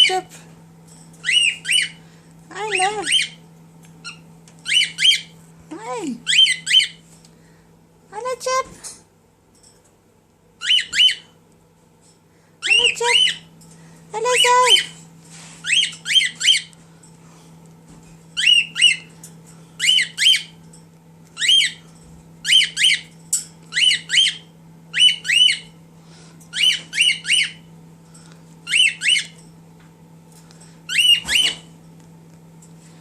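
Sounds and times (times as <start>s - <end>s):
cockatiel whistled chirps: 26.6s - 27.6s, 30.9s - 31.6s.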